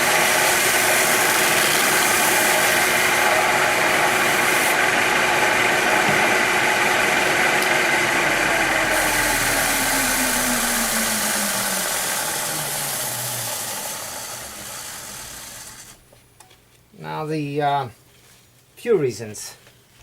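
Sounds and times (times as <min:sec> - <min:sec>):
electric motor spinning down: 0:00.0 - 0:16.0
running hiss: 0:08.2 - 0:16.0.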